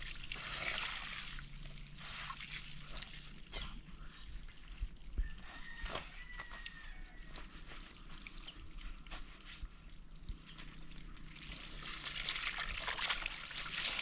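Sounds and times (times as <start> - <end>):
small water splashes: 0.0 - 3.8, 7.9 - 14.0
water trickling and pouring: 0.0 - 5.8, 7.5 - 14.0.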